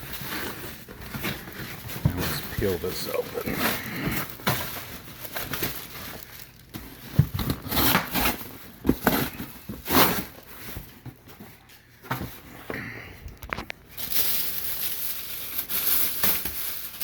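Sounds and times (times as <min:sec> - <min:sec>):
cardboard box rustling and crinkling: 0:00.0 - 0:12.5.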